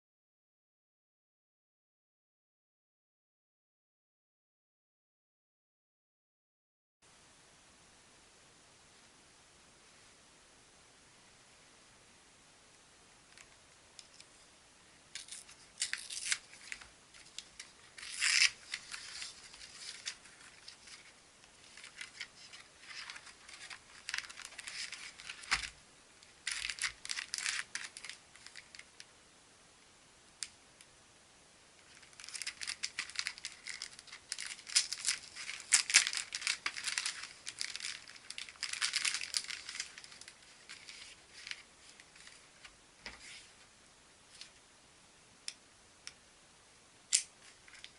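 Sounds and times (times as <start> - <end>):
packaging tearing and crinkling: 15.2 - 25.8, 26.4 - 28.9, 31.9 - 42.4.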